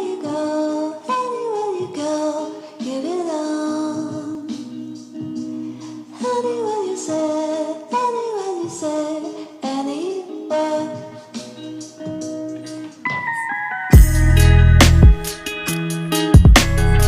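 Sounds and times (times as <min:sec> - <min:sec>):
background music: 0:00.0 - 0:17.0
sung melody sliding down: 0:13.0 - 0:16.2.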